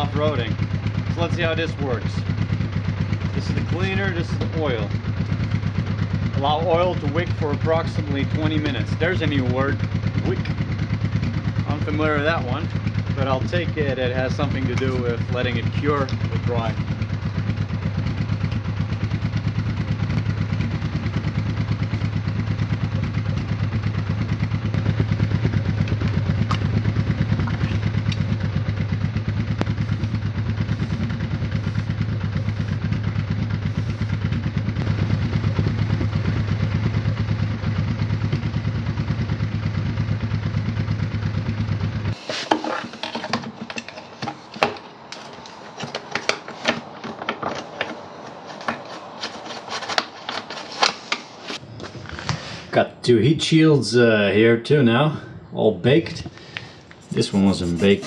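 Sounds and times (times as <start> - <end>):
motorcycle engine idling: 0.0 - 42.2.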